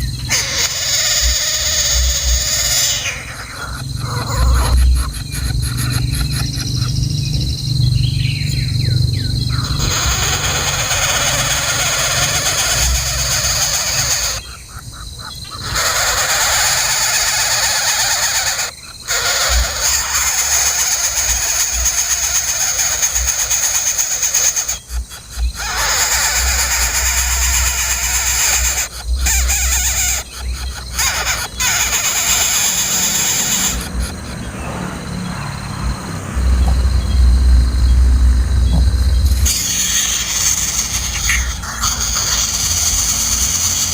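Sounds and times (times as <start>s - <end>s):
bird chirping: 0.0s - 43.9s
nestlings cheeping: 0.0s - 43.9s
low hum: 33.8s - 43.5s
hiss with high buzz: 39.3s - 43.9s.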